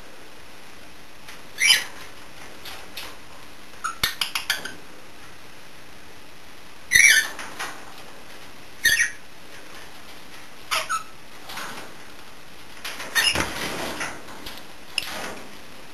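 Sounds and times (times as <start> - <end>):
birds clicking and chirping: 3.8 - 4.8, 6.9 - 7.8, 8.8 - 9.2, 10.7 - 11.8.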